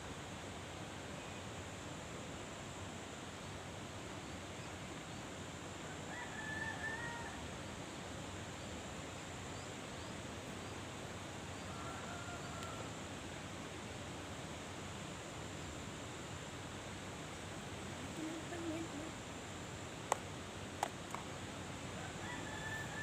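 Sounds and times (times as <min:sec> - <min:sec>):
rushing outdoor noise: 0:00.0 - 0:23.0.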